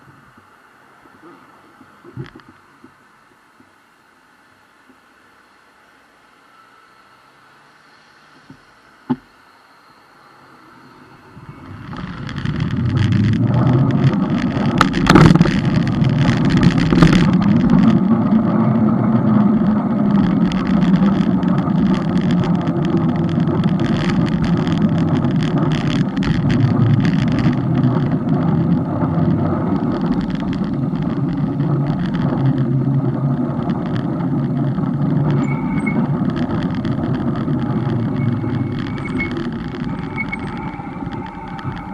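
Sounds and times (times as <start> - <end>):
wind and road rumble: 0.0 - 41.9.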